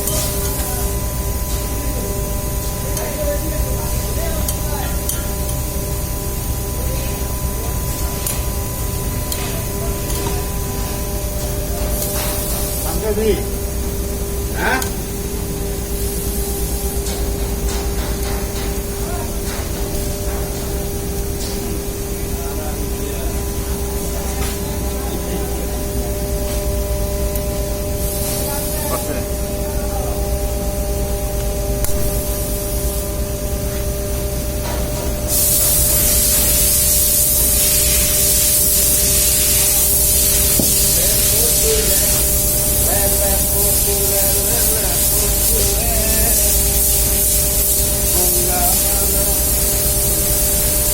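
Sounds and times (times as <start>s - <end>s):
machine humming with low rumble: 0.0s - 50.9s
loud even hiss: 27.8s - 29.9s, 31.8s - 33.6s, 34.6s - 50.9s.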